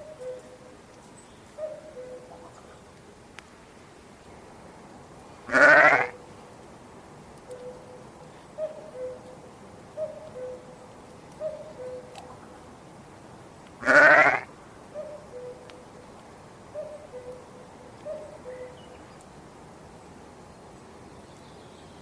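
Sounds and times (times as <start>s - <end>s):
farm animal bleating: 5.5s - 6.2s, 13.8s - 14.5s.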